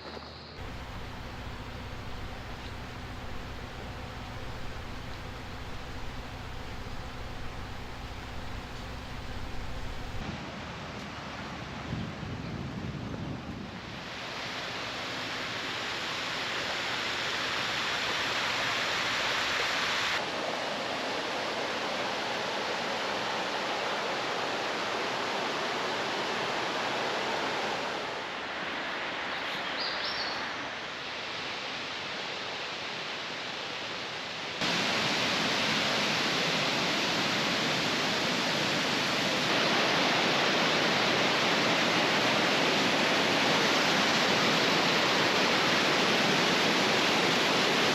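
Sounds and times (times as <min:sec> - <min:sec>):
waterfall roaring: 0:00.6 - 0:10.2, 0:34.6 - 0:47.9.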